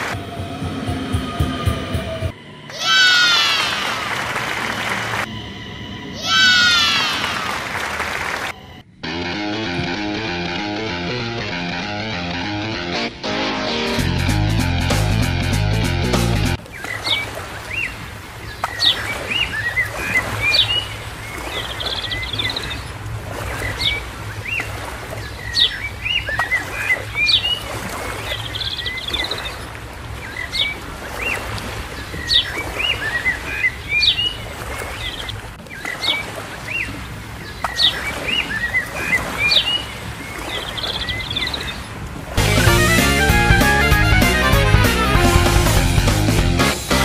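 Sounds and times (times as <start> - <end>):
birds chirping: 16.6 - 45.8.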